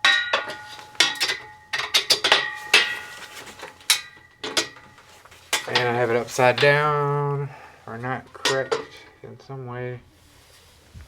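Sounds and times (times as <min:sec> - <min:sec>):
metal tubes clanking together: 0:00.0 - 0:07.3, 0:08.0 - 0:09.3.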